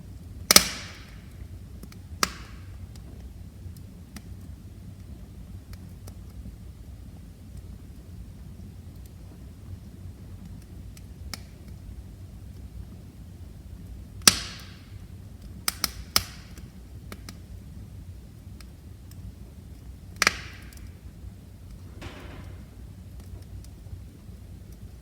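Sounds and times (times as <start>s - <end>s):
fire crackling and popping: 0.0s - 25.0s
wood fire rumbling: 0.0s - 25.0s.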